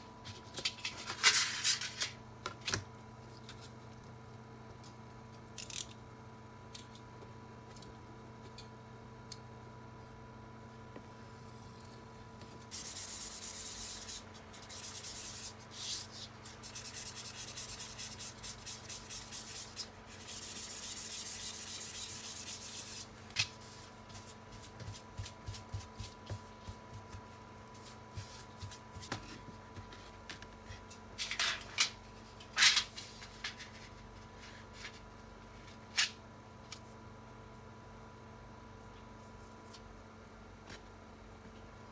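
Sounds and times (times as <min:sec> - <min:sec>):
hand sanding strokes: 0:12.8 - 0:26.2.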